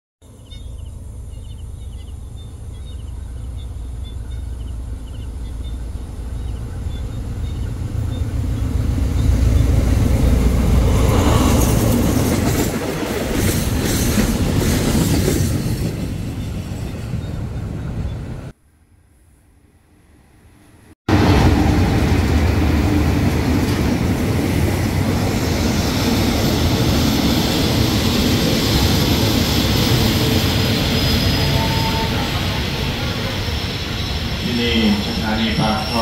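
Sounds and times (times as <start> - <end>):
diesel train engine rumble: 0.2 - 18.6, 21.1 - 36.0.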